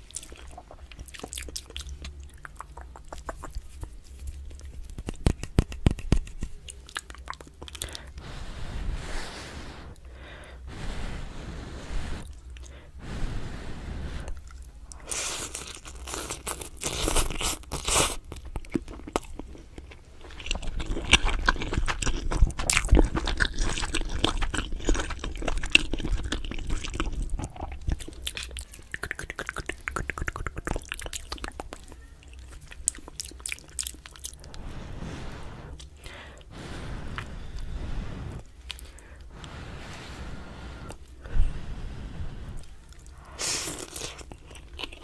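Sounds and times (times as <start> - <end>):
crunchy chewing and biting: 0.0 - 8.1, 14.3 - 36.5, 43.0 - 45.0.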